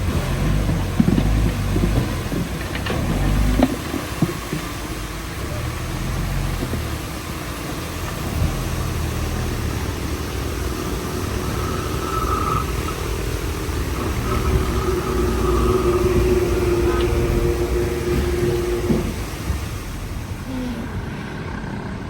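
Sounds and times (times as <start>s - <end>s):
bulldozer diesel engine running: 0.0s - 22.0s
thin high whine: 9.6s - 21.1s.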